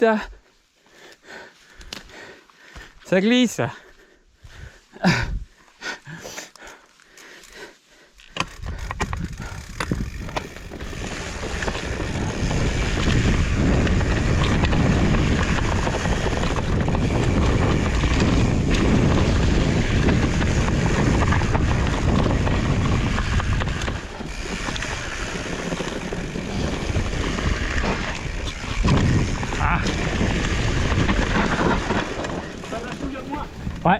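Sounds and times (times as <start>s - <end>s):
bike tyre rumble on trail: 3.8s - 33.9s
wind rushing over microphone: 8.5s - 33.9s.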